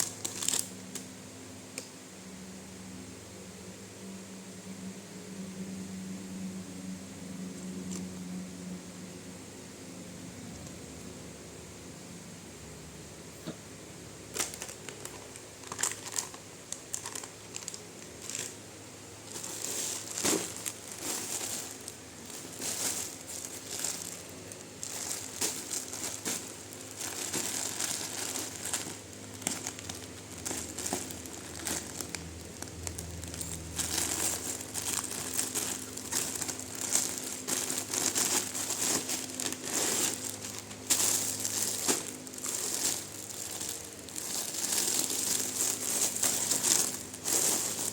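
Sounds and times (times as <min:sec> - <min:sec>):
packaging crinkling: 0:00.0 - 0:01.0, 0:14.3 - 0:18.6, 0:19.2 - 0:47.9.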